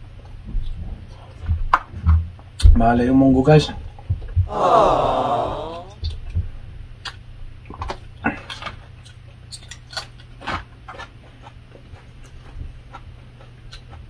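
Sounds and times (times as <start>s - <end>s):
chewing with lip smacks: 7.9s - 14.0s.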